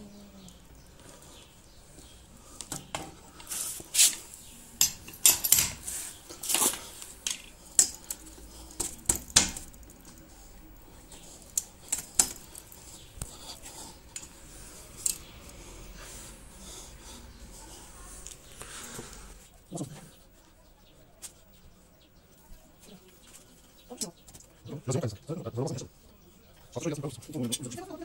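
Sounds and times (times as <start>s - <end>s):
short scraping hiss: 3.5s - 4.4s
hand tools clinking and clattering: 4.0s - 10.3s.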